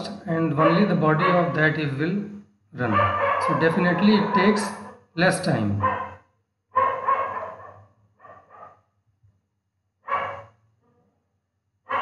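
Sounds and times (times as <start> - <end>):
dog barking: 0.6 - 1.6, 2.8 - 5.0, 5.8 - 6.2, 6.8 - 8.8, 10.0 - 10.6.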